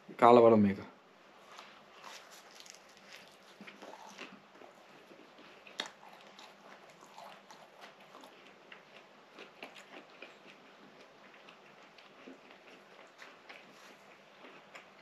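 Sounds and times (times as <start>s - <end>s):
mouth chewing soft pastry: 1.4s - 15.0s.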